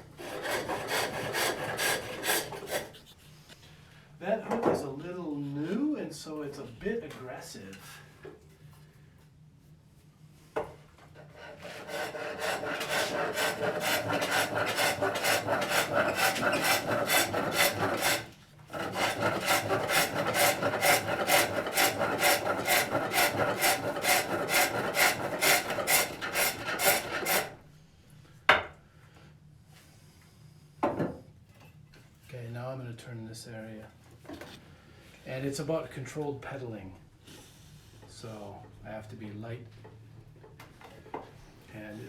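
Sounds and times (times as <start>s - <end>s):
hook tool scraping wood: 0.2s - 3.2s, 11.2s - 27.6s.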